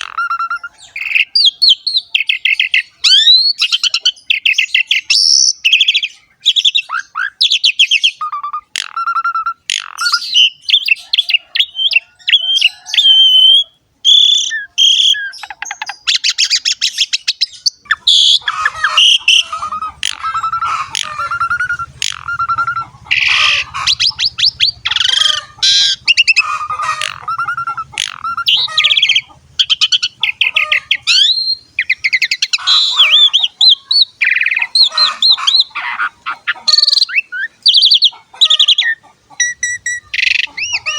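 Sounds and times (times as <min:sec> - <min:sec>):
starling singing: 0:00.0 - 0:40.9.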